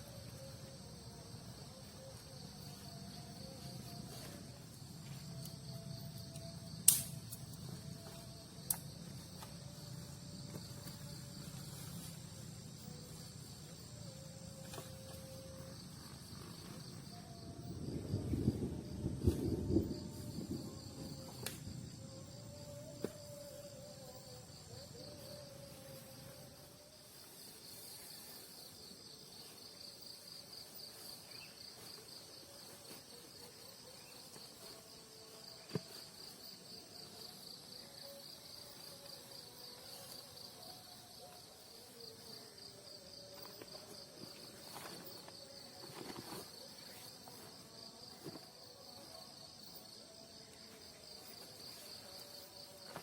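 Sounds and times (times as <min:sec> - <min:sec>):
crickets trilling: 0:00.0 - 0:53.0
sharp click: 0:06.8 - 0:07.4.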